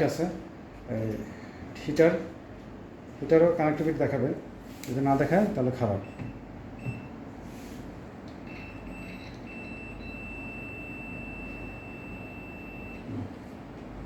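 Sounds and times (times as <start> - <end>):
multimeter continuity beeps: 6.0 - 7.2, 8.4 - 13.1.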